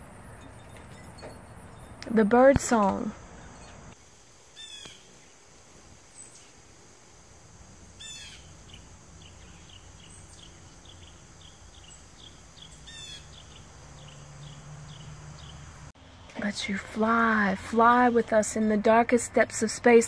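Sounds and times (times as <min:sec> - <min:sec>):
bird chirps: 0:08.0 - 0:15.7.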